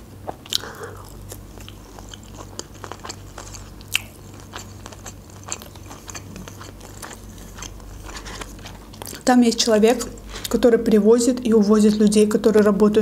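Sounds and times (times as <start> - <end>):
faint low hum: 0.0 - 13.0
chewing with wet crunches: 0.2 - 9.3.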